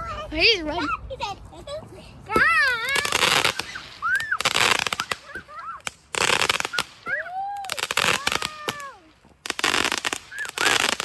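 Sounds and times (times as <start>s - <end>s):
fireworks crackling: 2.4s - 11.0s
firework squeals: 2.8s - 11.0s.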